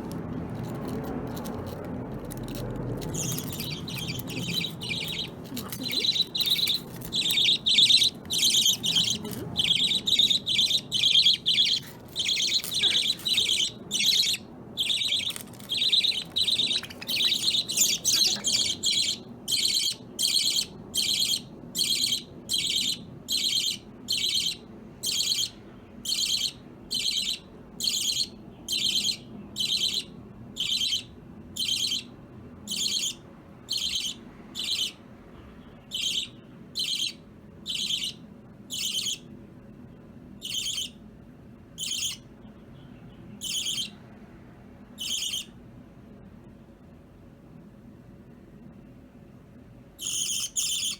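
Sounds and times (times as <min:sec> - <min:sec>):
budgerigar chirping: 0:03.2 - 0:32.1, 0:32.7 - 0:35.0, 0:35.9 - 0:39.3, 0:40.4 - 0:41.0, 0:41.8 - 0:42.2, 0:43.4 - 0:44.0, 0:45.0 - 0:45.5, 0:50.0 - 0:50.9.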